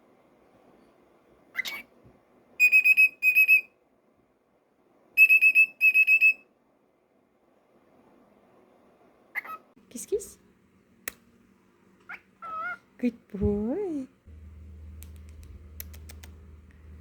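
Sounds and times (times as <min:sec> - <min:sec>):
cockatiel chirp: 0:01.6 - 0:01.9, 0:02.6 - 0:03.7, 0:05.2 - 0:06.4, 0:12.1 - 0:12.8
cockatiel whistling high pips: 0:02.6 - 0:03.7, 0:05.2 - 0:06.4.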